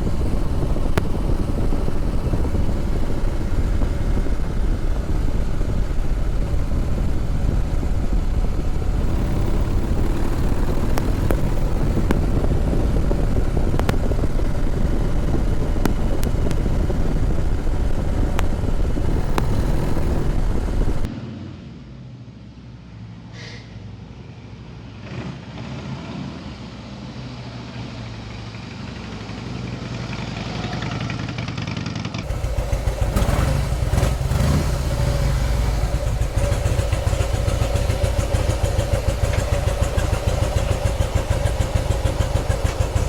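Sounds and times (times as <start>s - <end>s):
motorcycle engine running: 0.0s - 21.1s, 30.0s - 43.0s
sharp clicks: 0.0s - 21.1s, 32.2s - 43.0s
wind rush over microphone: 0.0s - 21.1s.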